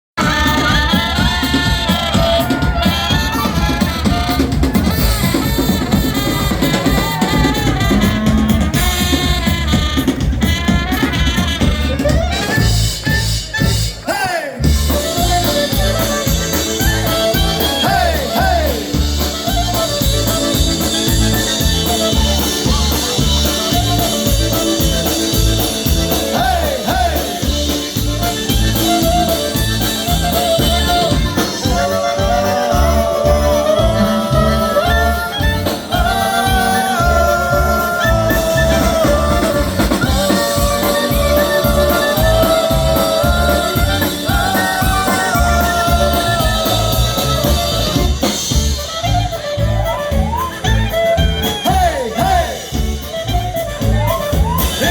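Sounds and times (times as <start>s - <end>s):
polka band playing: 0.2s - 54.9s.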